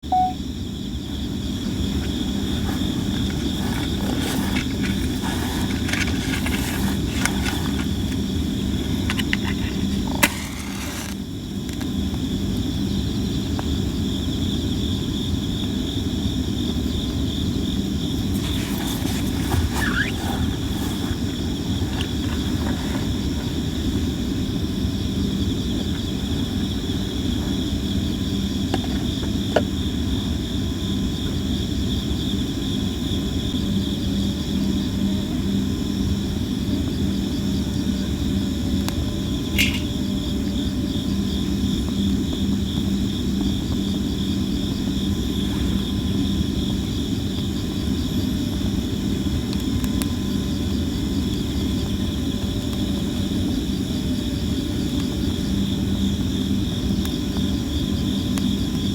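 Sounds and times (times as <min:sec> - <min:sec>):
insects chorusing: 0:00.0 - 0:58.9
campfire crackling and popping: 0:01.9 - 0:12.2, 0:39.5 - 0:40.2.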